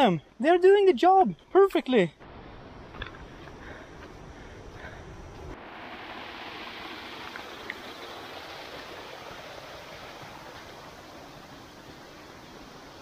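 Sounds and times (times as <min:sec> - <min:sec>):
flowing water rushing: 0:05.5 - 0:13.0.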